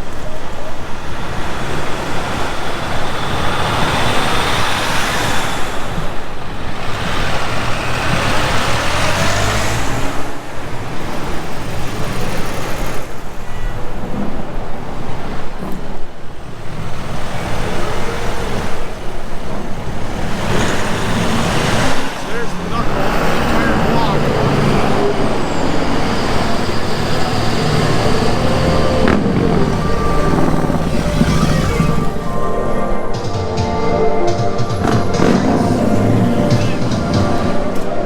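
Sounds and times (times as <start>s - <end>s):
vehicles passing: 0.0s - 38.0s
steady low rumble: 27.5s - 38.0s.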